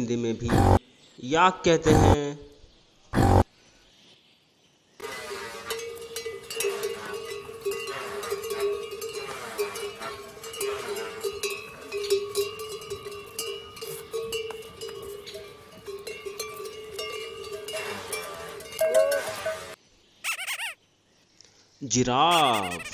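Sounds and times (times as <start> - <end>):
cowbells clanking: 5.0 - 19.8.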